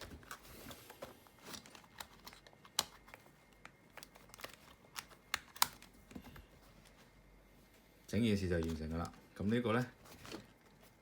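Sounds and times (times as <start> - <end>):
plastic parts clicking and rustling: 0.0 - 6.3.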